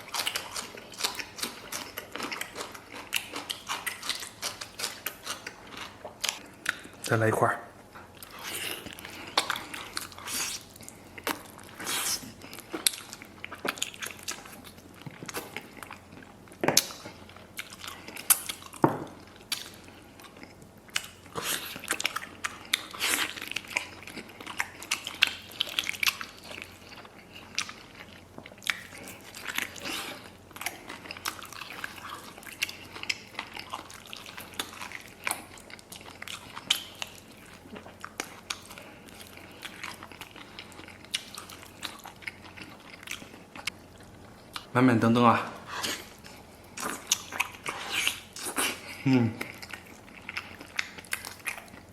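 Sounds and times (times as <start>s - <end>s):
wet chewing and biting: 0.0s - 7.1s, 8.0s - 44.7s, 45.7s - 51.9s.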